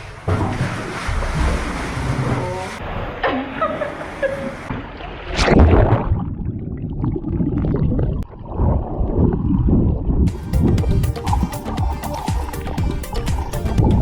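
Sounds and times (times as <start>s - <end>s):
loud splash: 0.0s - 6.3s
sea water splashing: 0.0s - 9.7s, 10.3s - 14.0s
underwater sloshing and bubbling: 0.0s - 10.3s.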